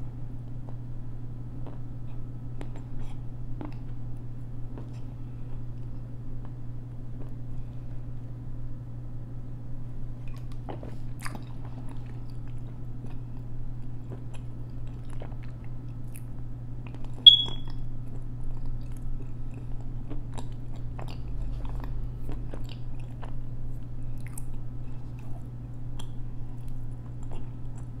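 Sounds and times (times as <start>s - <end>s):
steady low hum: 0.0s - 28.0s
clay being chewed with crunches: 1.5s - 7.5s, 10.2s - 28.0s
short high-pitched beep: 17.3s - 17.7s.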